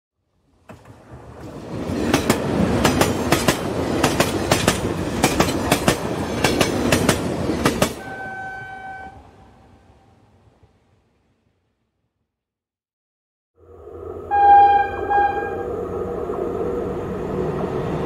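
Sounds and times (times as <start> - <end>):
train rumbling: 0.5 - 11.5, 13.6 - 18.0
wheels clacking on rail joints: 0.7 - 8.0
train horn: 8.0 - 9.7, 14.2 - 15.8.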